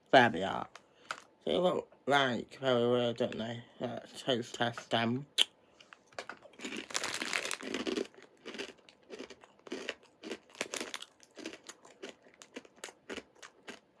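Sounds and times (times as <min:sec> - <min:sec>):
crunchy snack chewing: 0:06.2 - 0:14.0.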